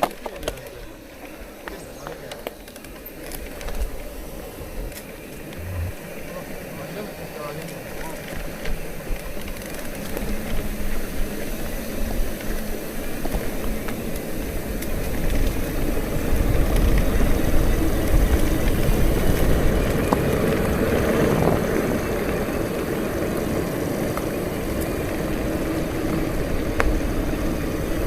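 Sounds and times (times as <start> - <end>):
bicycle tyre rumble: 0.0 - 28.0
wind rushing over microphone: 4.6 - 6.1.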